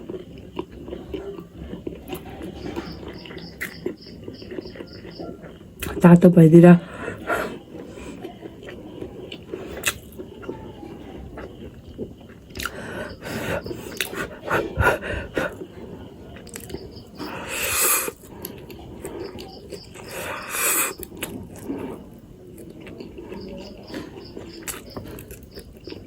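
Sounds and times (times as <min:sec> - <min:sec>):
person chewing noodles: 0:00.0 - 0:06.0, 0:06.9 - 0:26.0.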